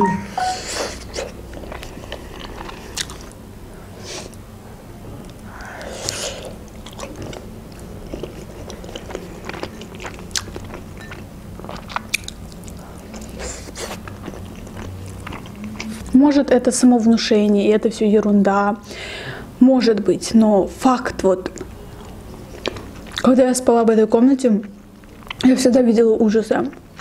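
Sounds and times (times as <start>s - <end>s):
chewing and biting dumplings: 0.9s - 3.4s, 6.0s - 16.1s, 21.5s - 23.4s, 24.6s - 25.5s.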